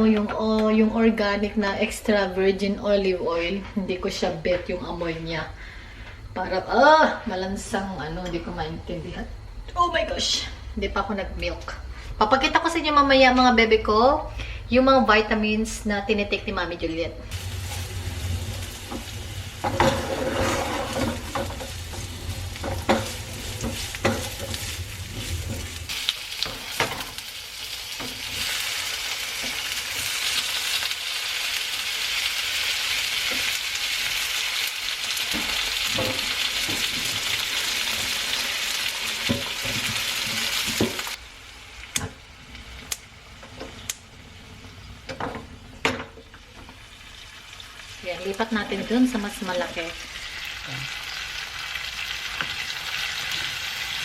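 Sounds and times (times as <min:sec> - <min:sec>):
low hum: 0:08.2 - 0:25.9
garlic and onion sizzling in pan: 0:17.3 - 0:54.0
utensil stirring and tapping pan: 0:18.9 - 0:27.2.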